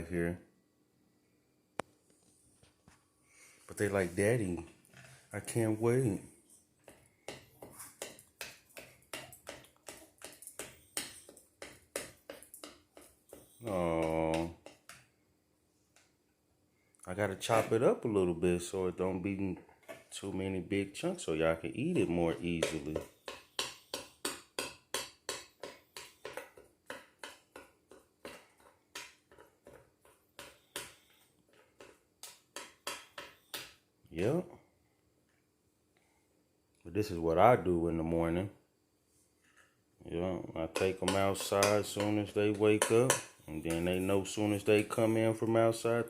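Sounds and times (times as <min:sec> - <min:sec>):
utensil chopping food in a dish: 0:06.8 - 0:15.1, 0:21.9 - 0:33.8, 0:40.7 - 0:45.3.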